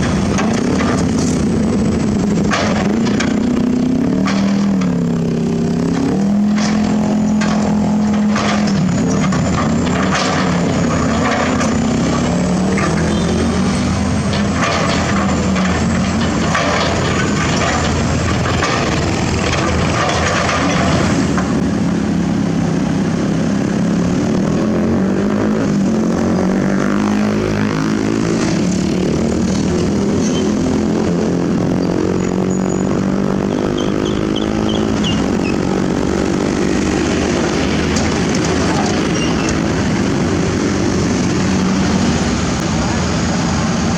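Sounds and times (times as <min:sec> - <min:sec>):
excavator diesel engine running: 0:00.0 - 0:43.9
high-pitched squeaks: 0:32.2 - 0:35.8, 0:38.8 - 0:39.7.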